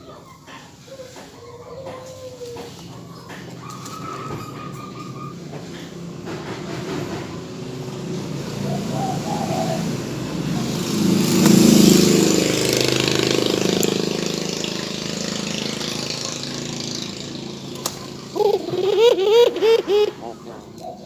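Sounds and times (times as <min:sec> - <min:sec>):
dove cooing: 0:00.0 - 0:06.1, 0:08.2 - 0:16.6, 0:17.2 - 0:21.0
vehicle passing: 0:02.3 - 0:21.0.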